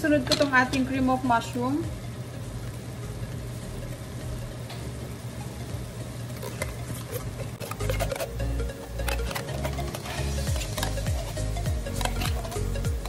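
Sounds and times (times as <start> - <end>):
chicken and onions sizzling: 0.0 - 13.0
steady low hum: 0.0 - 13.0
spoon scraping a tin can: 6.4 - 13.0.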